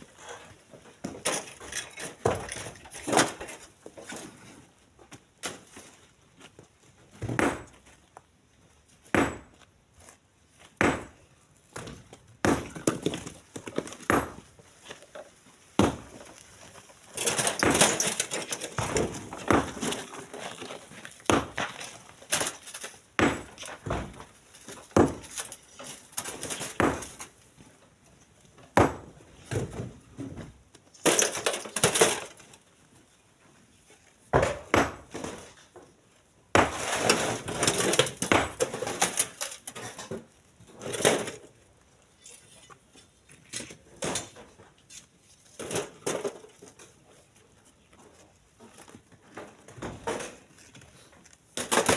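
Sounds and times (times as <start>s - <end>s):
rocks clattering into truck bed: 17.1s - 27.4s, 36.6s - 41.5s.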